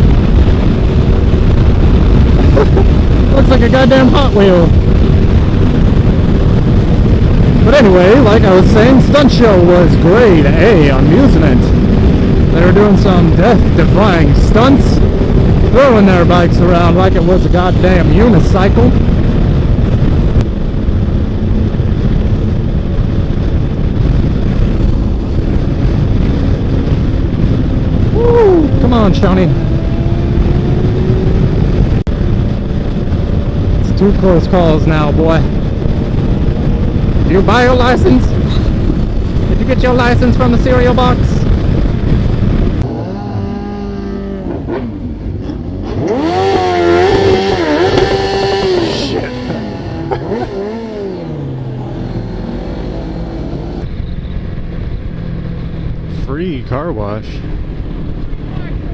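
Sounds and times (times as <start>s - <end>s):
motorcycle engine revving: 0.0s - 20.6s, 23.2s - 34.0s, 35.1s - 56.2s
wind rushing over microphone: 0.0s - 58.9s
motorcycle engine running: 35.4s - 56.8s.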